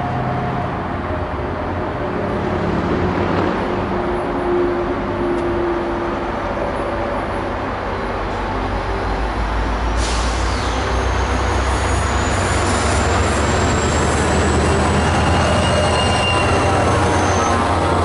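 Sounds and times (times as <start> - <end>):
diesel train engine rumble: 0.0 - 18.0
high wheel squeal: 10.0 - 18.0.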